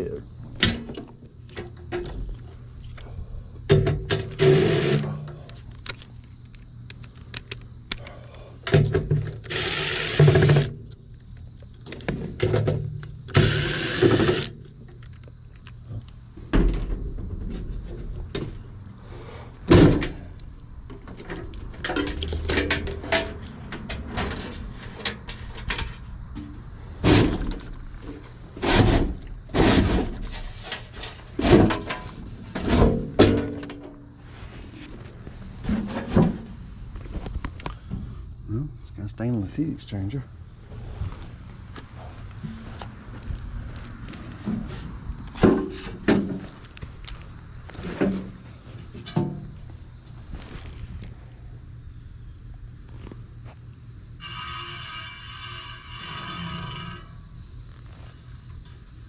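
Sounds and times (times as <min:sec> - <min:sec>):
tool knocks and clunks on metal: 0:00.6 - 0:02.3, 0:03.7 - 0:05.4, 0:08.6 - 0:09.4, 0:11.9 - 0:13.5, 0:20.9 - 0:30.2, 0:31.4 - 0:34.0, 0:45.4 - 0:46.5, 0:49.0 - 0:49.6.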